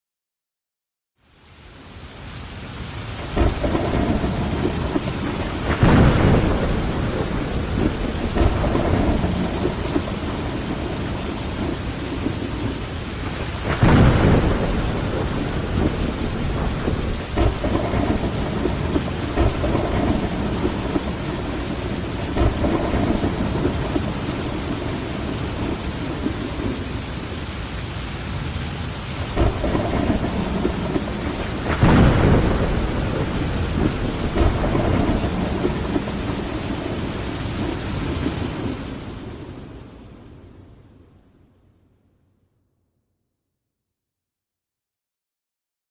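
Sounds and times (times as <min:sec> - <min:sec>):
heavy rain: 0:01.2 - 0:42.0
thunder rolling: 0:03.2 - 0:27.5, 0:28.3 - 0:40.3.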